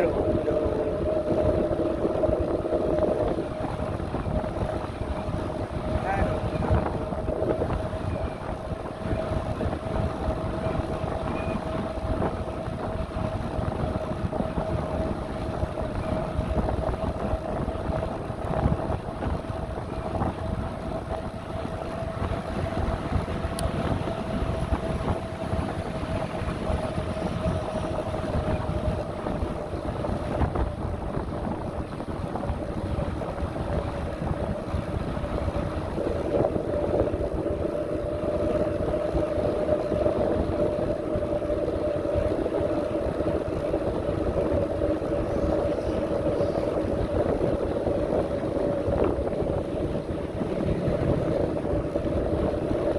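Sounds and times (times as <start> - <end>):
bicycle tyre rumble: 0.0 - 52.9
steady whine: 0.0 - 52.9
wind buffeting microphone: 0.0 - 52.9.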